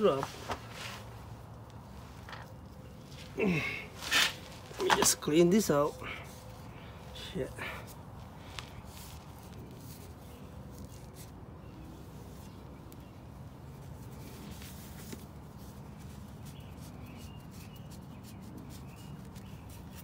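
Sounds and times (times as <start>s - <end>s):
faint bird chirps: 15.8s - 20.0s.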